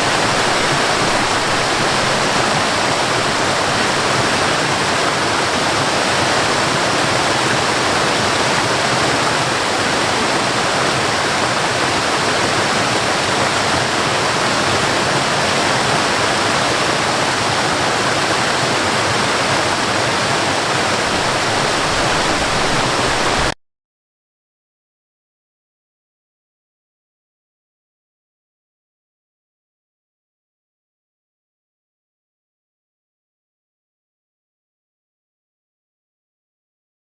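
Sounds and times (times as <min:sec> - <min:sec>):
waterfall roaring: 0:00.0 - 0:23.6.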